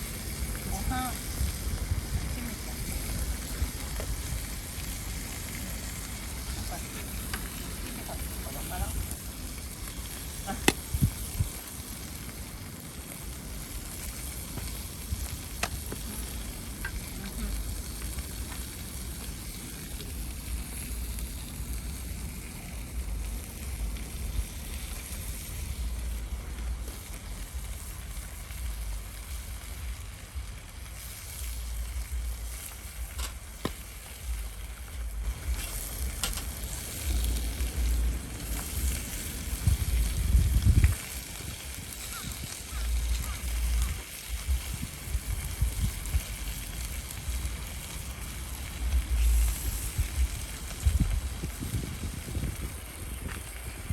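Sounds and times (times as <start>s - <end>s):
food sizzling over fire: 0.0s - 53.9s
low rumble: 14.8s - 30.9s, 31.5s - 41.7s, 42.8s - 53.9s.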